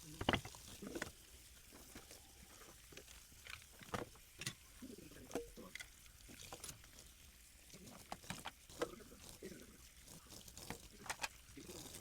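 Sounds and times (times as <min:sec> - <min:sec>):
blender parts knocking and clinking: 0:00.2 - 0:00.6.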